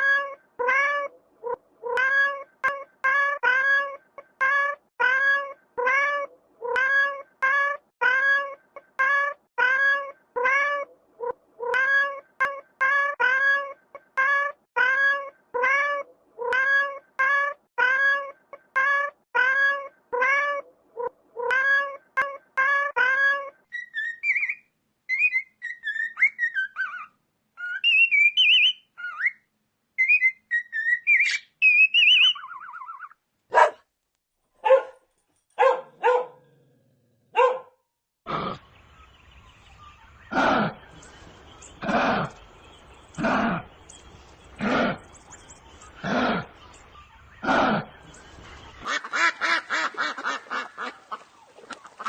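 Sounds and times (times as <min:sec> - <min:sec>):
high chirping and twittering: 0:23.7 - 0:33.2, 0:38.6 - 0:49.1.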